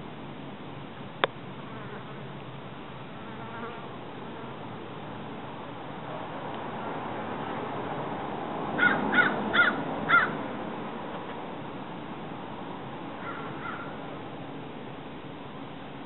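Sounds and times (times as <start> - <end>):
bird calling: 8.8 - 10.4, 13.2 - 14.1.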